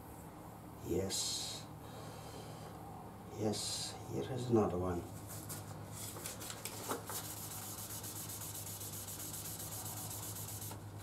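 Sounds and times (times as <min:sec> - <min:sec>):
wet sandpaper rubbing on metal: 0:07.2 - 0:10.8.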